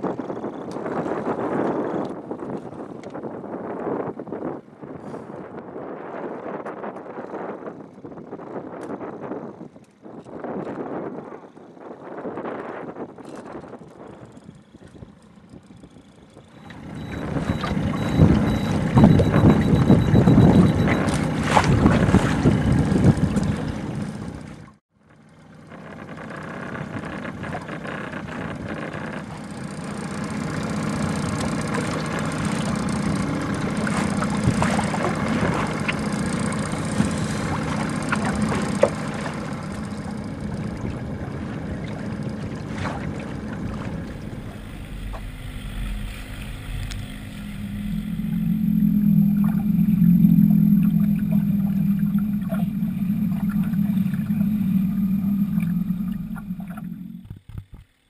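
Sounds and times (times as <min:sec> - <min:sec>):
boat motor humming: 0:00.0 - 0:58.0
wind: 0:00.0 - 0:58.0
water lapping: 0:13.3 - 0:58.0.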